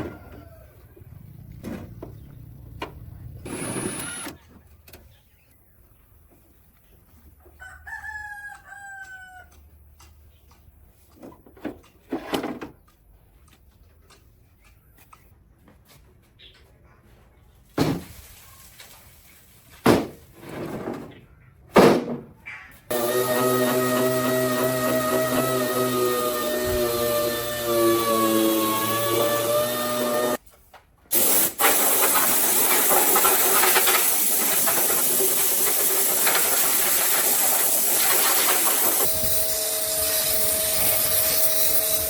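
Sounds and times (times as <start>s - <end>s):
rooster crowing: 0.0s - 1.0s, 7.6s - 9.6s
workshop knocks and scrapes: 11.0s - 12.8s, 17.7s - 18.3s, 19.7s - 22.4s.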